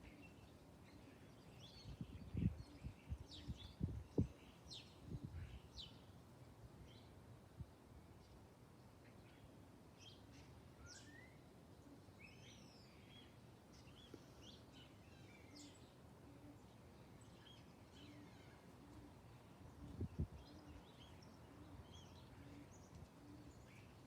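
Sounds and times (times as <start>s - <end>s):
low outdoor background noise: 0.0s - 24.0s
small birds chirping and whistling: 10.8s - 11.4s.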